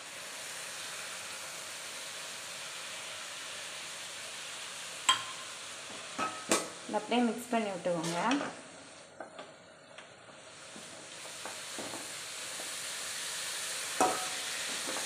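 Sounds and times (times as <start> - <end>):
carrot sizzling in a pan: 0.0 - 15.0
spoon clacking on a pan: 5.1 - 5.5, 14.0 - 15.0.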